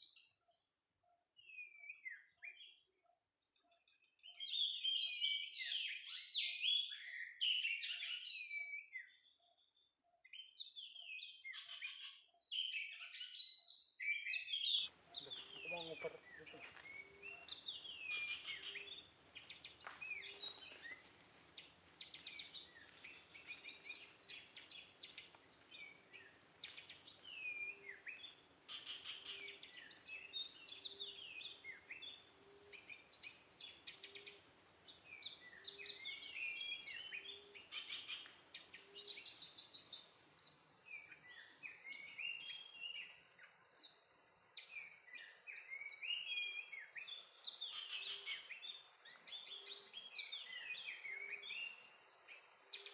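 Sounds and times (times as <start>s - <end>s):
songbird chirping and whistling: 10.3s - 33.4s.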